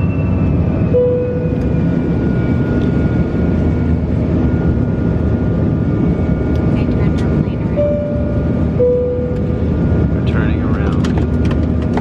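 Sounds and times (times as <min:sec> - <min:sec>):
airliner engine rumble in cabin: 0:00.0 - 0:12.0.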